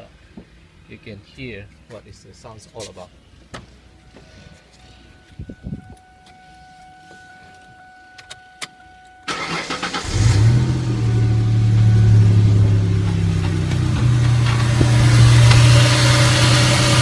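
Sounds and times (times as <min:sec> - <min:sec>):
car engine idling: 0:09.2 - 0:17.0
starter motor cranking: 0:09.3 - 0:10.5.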